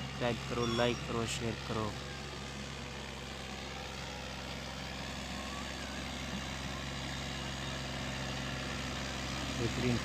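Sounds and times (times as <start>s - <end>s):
tractor diesel engine under load: 0.0s - 10.0s.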